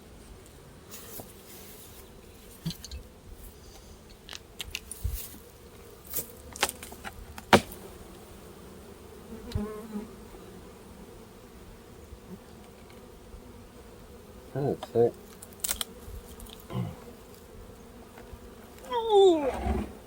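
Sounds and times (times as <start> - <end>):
single bee buzzing close: 5.1 - 20.0
bees buzzing: 5.5 - 20.0
clicks and knocks of hive parts: 6.1 - 7.9, 14.8 - 16.7.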